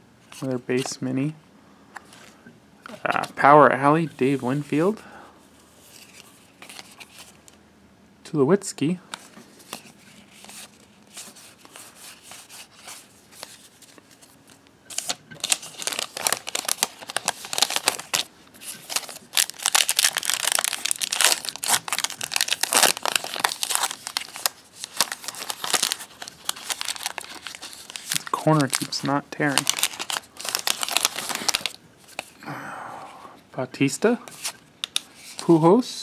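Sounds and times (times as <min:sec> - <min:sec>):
plastic wrapper crinkling and tearing: 0:09.6 - 0:32.4, 0:34.3 - 0:35.4.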